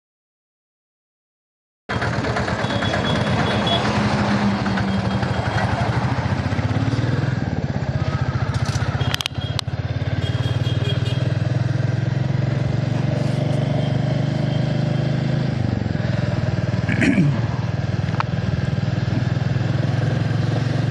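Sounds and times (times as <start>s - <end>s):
motorcycle engine running: 1.9s - 20.9s
sharp clicks: 8.5s - 9.7s.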